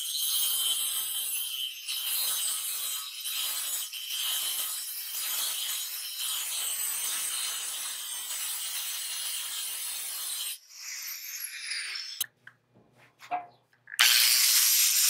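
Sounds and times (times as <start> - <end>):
angle grinder cutting steel: 0.0 - 12.2, 14.0 - 15.0
grinder starting up: 14.0 - 15.0
grinder winding down: 14.0 - 15.0.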